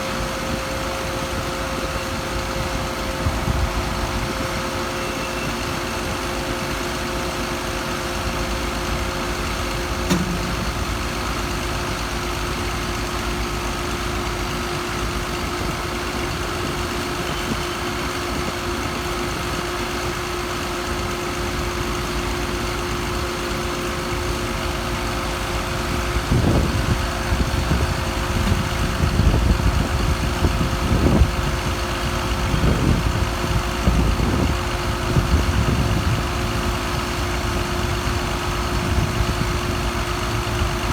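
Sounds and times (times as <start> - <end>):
engine idling: 0.0 - 40.9
uneven low rumbles: 22.9 - 40.9.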